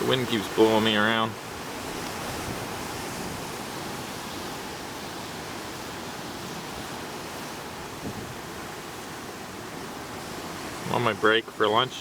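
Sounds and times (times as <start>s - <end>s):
waves rushing: 0.0s - 12.0s
wind: 0.0s - 12.0s.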